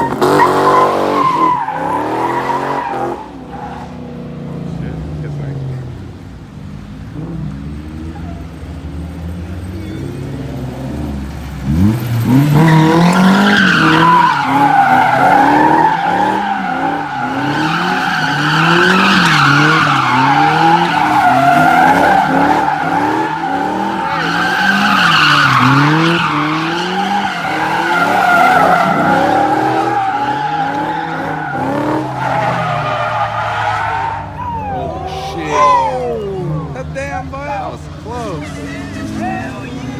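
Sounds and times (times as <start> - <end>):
car engine revving: 0.0 - 39.9
tyres squealing: 11.8 - 39.9.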